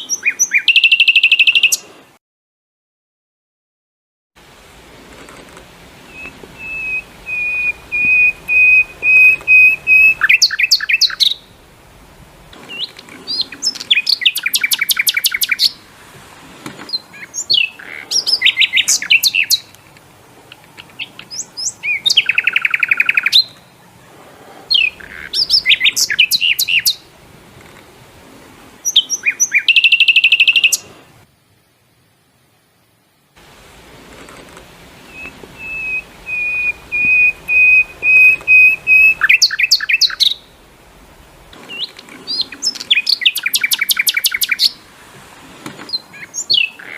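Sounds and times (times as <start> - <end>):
songbird singing trills: 0.0 - 1.9, 6.0 - 11.7, 12.6 - 15.9, 16.9 - 24.1, 24.7 - 27.1, 28.8 - 31.0, 35.0 - 40.8, 41.5 - 44.8, 45.9 - 46.9.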